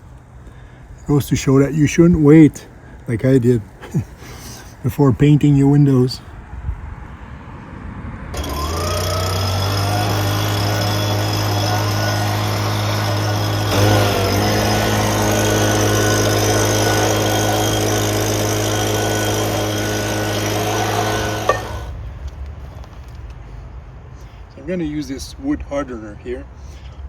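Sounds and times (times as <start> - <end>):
small electric motor running: 8.4 - 22.0.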